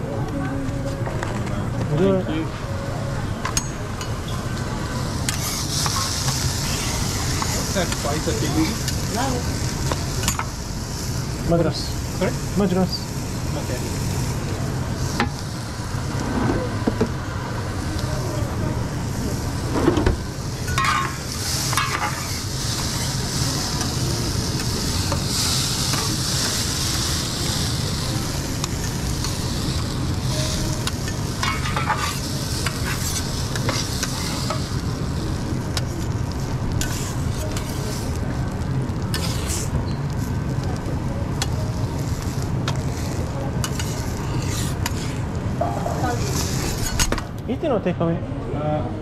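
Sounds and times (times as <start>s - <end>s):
omelette sizzling on griddle: 2.0s - 47.8s
spatula scraping and tapping metal: 31.4s - 34.6s, 43.6s - 45.2s.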